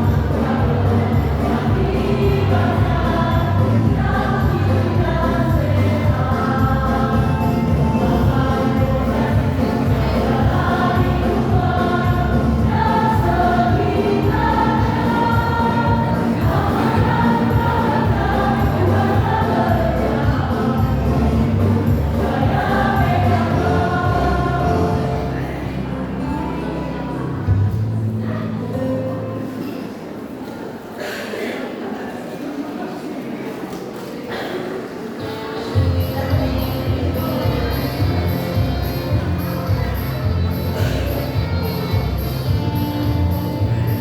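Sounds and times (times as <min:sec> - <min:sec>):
choir singing: 0:00.0 - 0:27.4.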